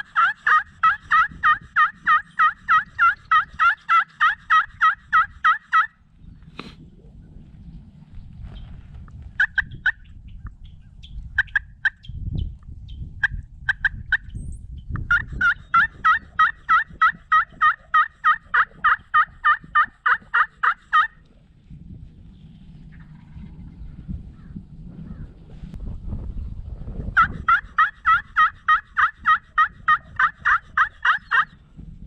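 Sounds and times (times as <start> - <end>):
turkey yelps: 0.0 - 6.0, 9.4 - 10.2, 11.4 - 12.1, 13.2 - 14.3, 15.1 - 21.3, 27.2 - 31.6
wind noise: 0.0 - 32.0.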